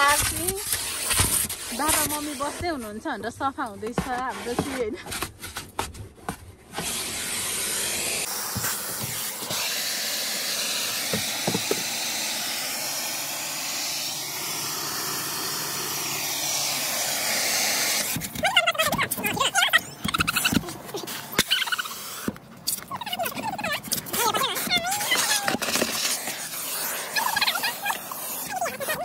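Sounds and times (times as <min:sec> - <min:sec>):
pressure washer spraying water: 0:06.8 - 0:18.7, 0:19.8 - 0:22.3, 0:23.4 - 0:29.0.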